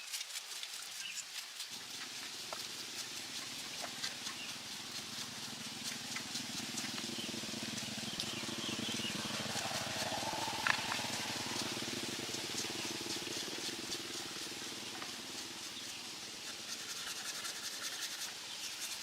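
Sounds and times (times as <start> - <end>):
small engine running: 0.4 - 19.0.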